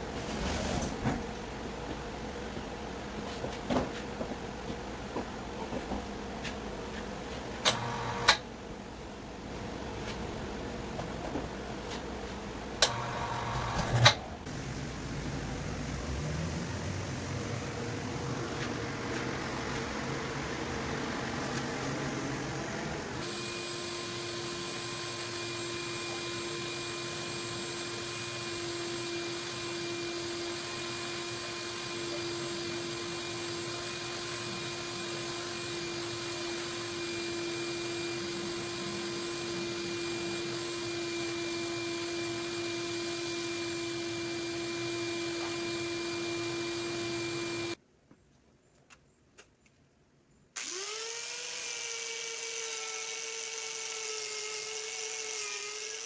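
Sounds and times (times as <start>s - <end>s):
power tool motor whining: 7.6s - 8.4s, 12.8s - 14.5s, 23.2s - 47.8s, 50.6s - 56.0s
motor spinning up: 7.7s - 8.4s, 12.8s - 18.2s, 33.4s - 47.8s, 50.6s - 56.0s.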